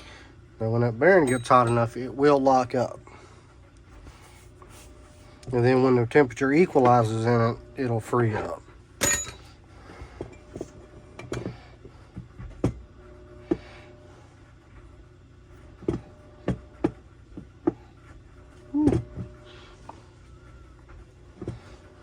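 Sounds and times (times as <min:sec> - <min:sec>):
metal parts tapping on workbench: 0:01.2 - 0:01.9, 0:09.0 - 0:09.5.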